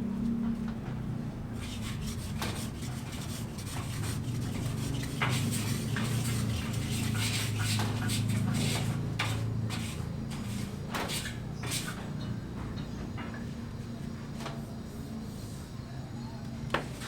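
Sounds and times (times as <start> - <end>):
steady low hum: 0.0 - 17.0
rough scraping: 1.6 - 11.9.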